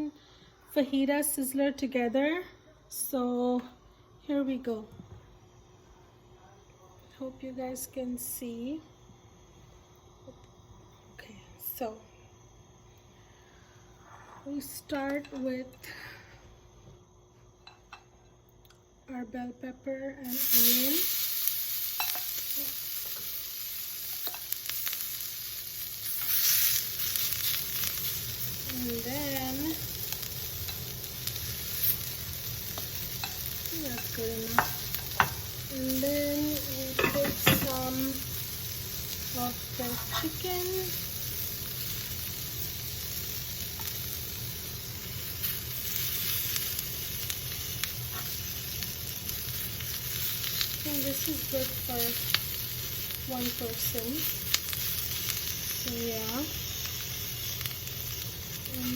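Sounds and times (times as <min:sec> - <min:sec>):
vegetables sizzling in a skillet: 0:07.2 - 0:10.4, 0:19.1 - 0:58.9.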